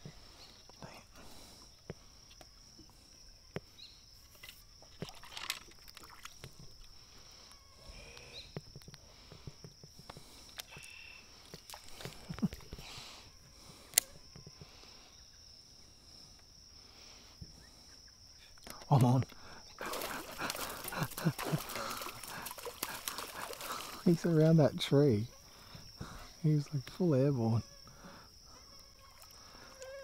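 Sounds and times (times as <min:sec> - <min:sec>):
high-pitched insect drone: 0:06.4 - 0:30.0.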